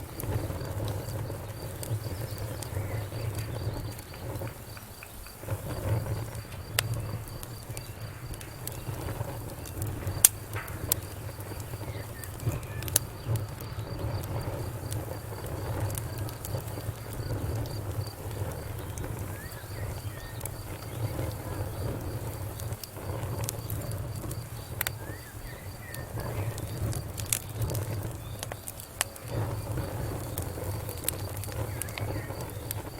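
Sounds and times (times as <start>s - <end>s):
crickets chirping: 0.0s - 32.9s
wood fire crackling: 0.0s - 32.9s.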